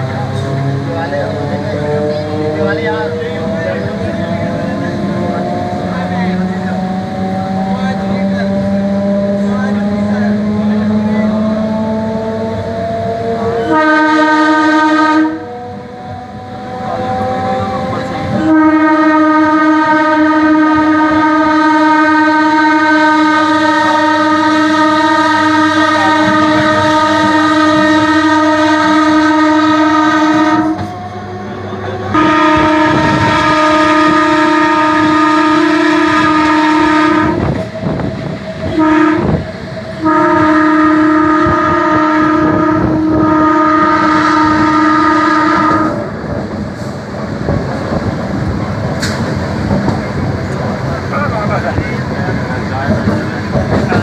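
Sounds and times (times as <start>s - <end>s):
train horn blasts: 0.0s - 46.2s
train wheels clattering: 46.0s - 54.0s.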